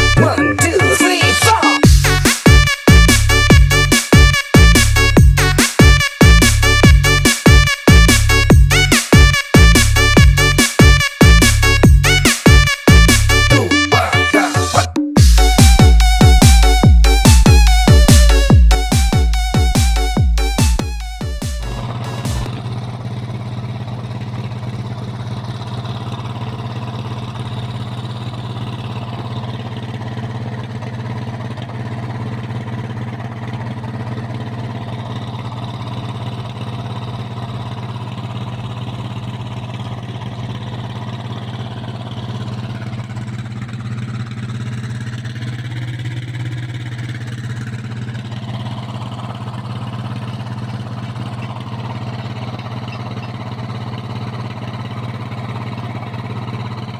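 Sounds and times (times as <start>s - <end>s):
diesel engine running steadily: 0.0s - 56.9s.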